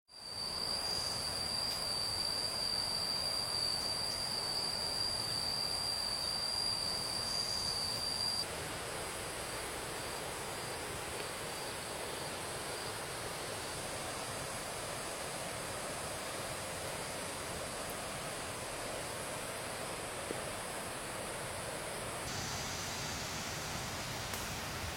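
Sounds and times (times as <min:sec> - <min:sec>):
insect trilling: 0:00.1 - 0:08.5
stream water running: 0:00.4 - 0:24.9.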